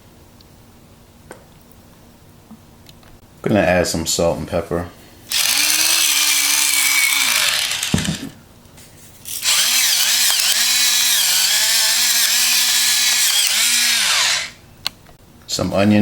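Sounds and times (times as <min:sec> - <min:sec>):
electric grinder motor whining: 0:05.3 - 0:08.3, 0:09.3 - 0:14.6.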